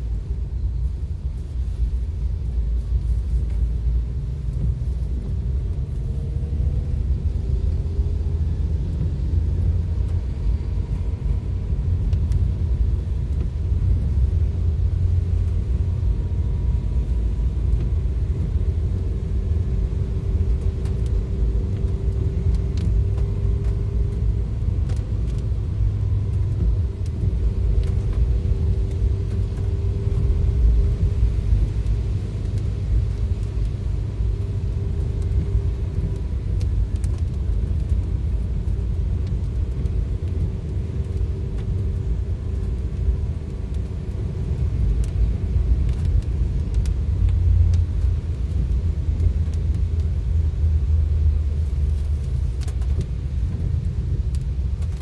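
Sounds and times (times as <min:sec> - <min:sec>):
heavy rain: 0:00.0 - 0:55.0
vehicle rumble driving: 0:00.0 - 0:55.0
light ticks: 0:12.0 - 0:14.3, 0:19.5 - 0:55.0.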